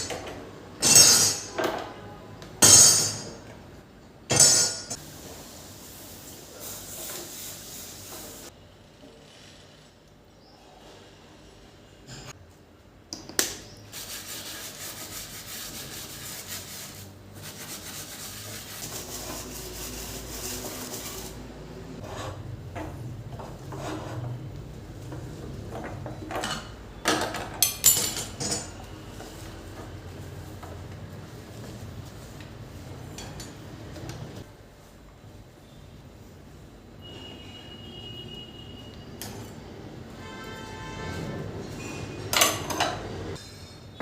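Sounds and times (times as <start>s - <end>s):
dishes and utensils clattering: 0.0s - 3.5s, 25.1s - 29.0s, 41.7s - 44.0s.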